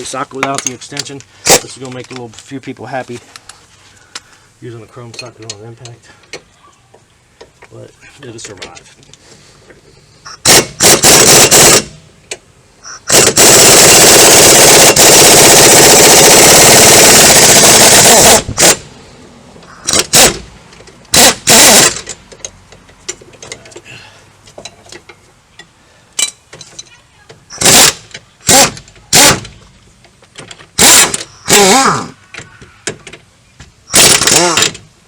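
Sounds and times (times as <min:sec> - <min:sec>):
pneumatic impact wrench hammering: 0:10.3 - 0:18.9, 0:19.7 - 0:20.5, 0:21.1 - 0:22.5, 0:27.5 - 0:29.6, 0:30.7 - 0:32.2, 0:33.9 - 0:34.9.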